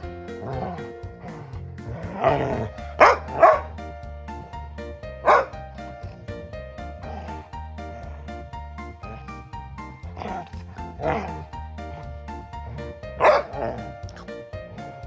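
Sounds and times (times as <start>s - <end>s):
background music: 0.0s - 15.0s
dog barking: 2.2s - 3.8s, 5.2s - 5.6s, 13.2s - 13.8s.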